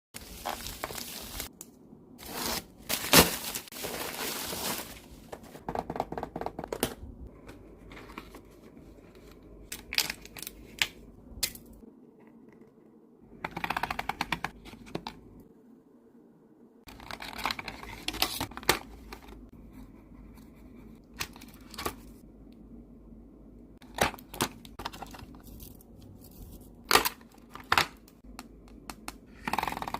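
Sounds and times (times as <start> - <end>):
packaging tearing and crinkling: 2.2 - 5.0.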